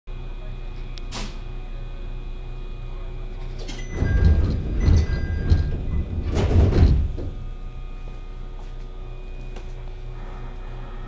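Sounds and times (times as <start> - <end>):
train car low hum: 0.1 - 11.0
train rumbling with clatter: 3.5 - 7.6.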